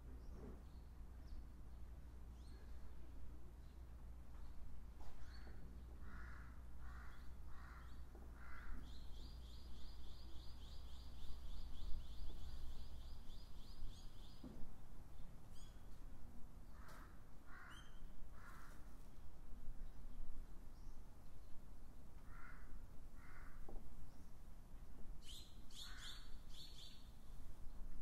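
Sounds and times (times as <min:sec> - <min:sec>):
harsh bird calls: 0:25.3 - 0:27.1.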